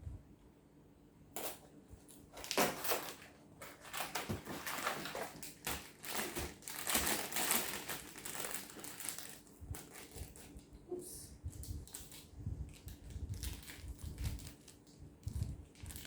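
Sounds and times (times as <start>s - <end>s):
paper bag rustling and crackling: 2.3s - 10.7s, 11.6s - 16.0s.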